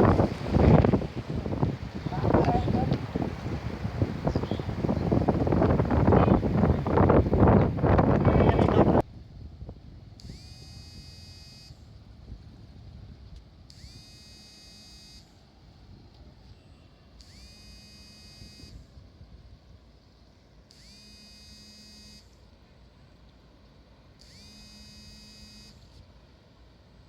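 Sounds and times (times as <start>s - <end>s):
low background rumble: 0.0s - 10.4s
faint electronic alarm tone: 10.2s - 11.8s, 13.7s - 15.4s, 16.4s - 18.9s, 20.7s - 22.4s, 24.2s - 25.9s.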